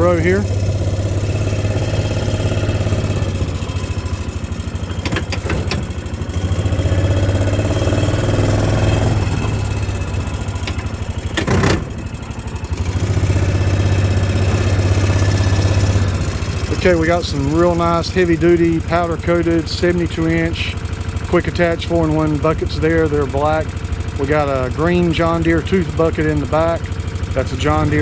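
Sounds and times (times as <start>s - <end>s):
vehicle engine running: 0.0s - 28.0s
loud clunk: 4.8s - 6.0s, 10.6s - 12.1s.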